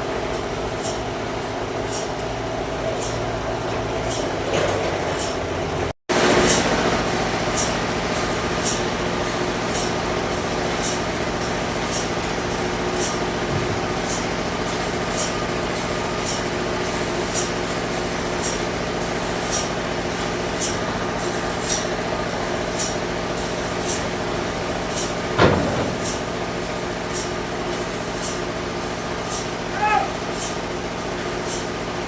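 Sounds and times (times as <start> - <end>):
sawmill machinery humming: 0.0 - 32.0.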